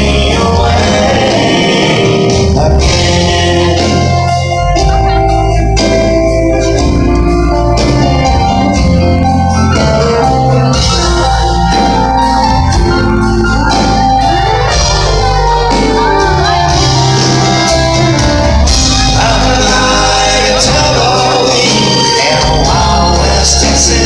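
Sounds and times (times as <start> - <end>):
man singing: 0.0 - 7.6, 18.6 - 24.0
live country band playing: 0.0 - 24.0.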